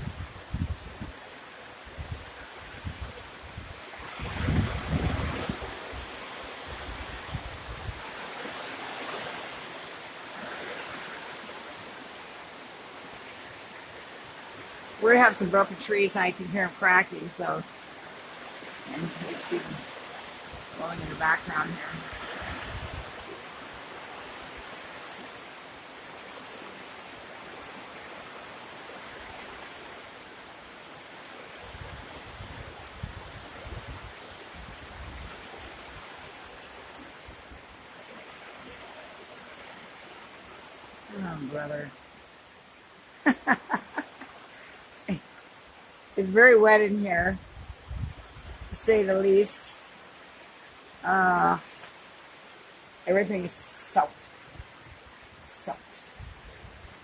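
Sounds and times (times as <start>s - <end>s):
wind buffeting the microphone: 0.0s - 1.2s, 1.8s - 8.2s, 20.4s - 23.3s, 31.6s - 36.3s, 47.1s - 49.0s, 54.5s - 57.0s
strong wind gusting through trees: 0.0s - 57.0s.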